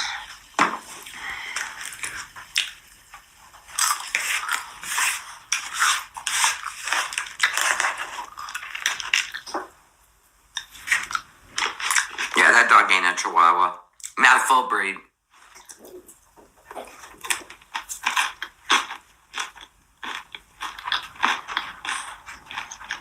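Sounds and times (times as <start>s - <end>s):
food being chewed crunching: 0.4s - 9.7s, 10.6s - 12.4s, 15.4s - 23.0s.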